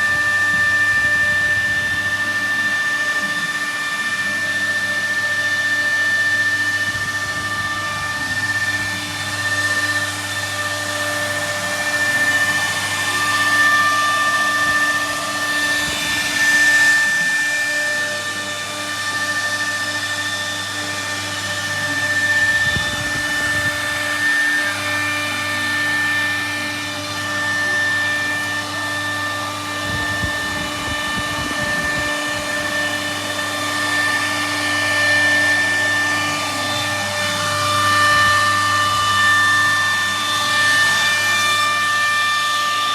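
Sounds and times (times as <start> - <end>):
hiss of cutting wood: 0.0 - 42.9
router spindle whining: 0.0 - 42.9.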